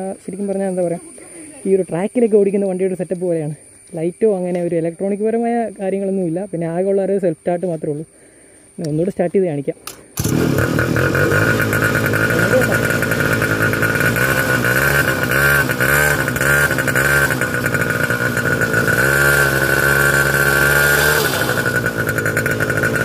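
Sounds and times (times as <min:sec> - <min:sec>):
minibike engine revving: 0:10.2 - 0:23.0.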